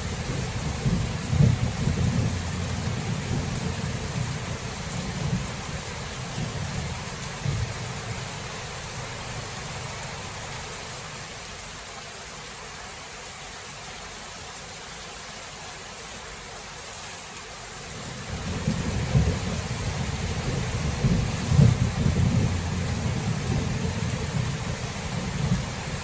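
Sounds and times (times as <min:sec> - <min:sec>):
thunder rumbling: 0:00.0 - 0:09.0, 0:18.0 - 0:26.0
rain hissing: 0:00.0 - 0:26.0.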